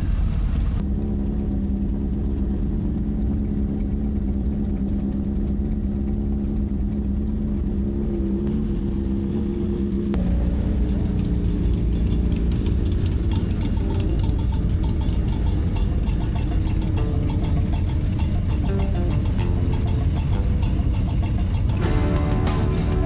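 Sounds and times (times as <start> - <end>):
motorcycle engine running: 0.1 - 23.0
heavy low rumble: 8.4 - 23.0.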